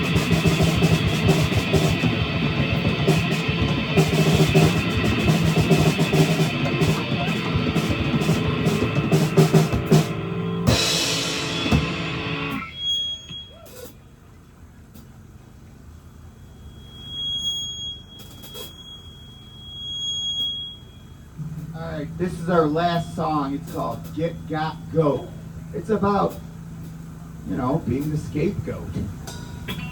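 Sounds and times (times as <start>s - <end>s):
live rock band playing: 0.0s - 12.9s
cymbal crash: 0.0s - 13.9s, 21.4s - 24.2s
faint steady high tone: 12.5s - 27.6s.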